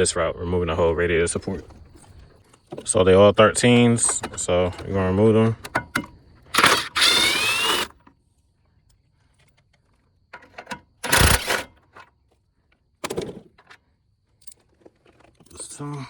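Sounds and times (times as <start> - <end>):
power tool whining in bursts: 5.6 - 8.0, 11.0 - 11.8.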